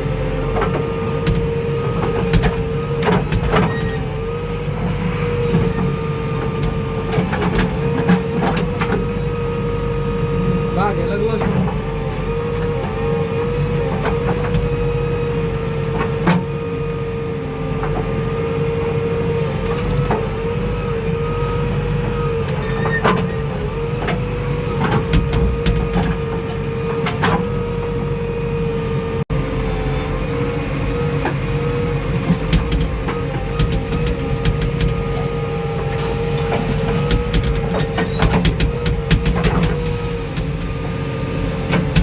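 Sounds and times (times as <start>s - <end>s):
diesel engine rumbling with whine: 0.0s - 42.0s
metal knocks and clanks: 24.8s - 27.5s, 32.2s - 42.0s.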